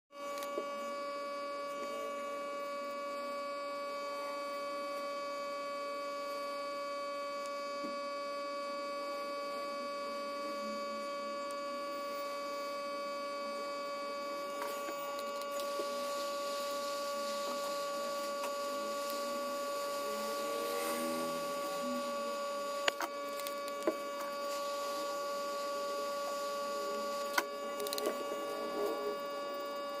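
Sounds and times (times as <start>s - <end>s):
electrical hum with whine: 0.1s - 30.0s.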